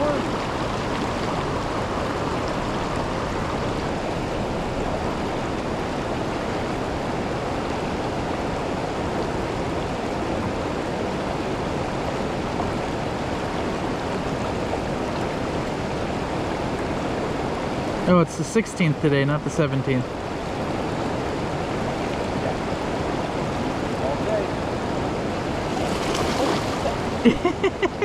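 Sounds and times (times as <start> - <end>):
waterfall roaring: 0.0 - 28.0.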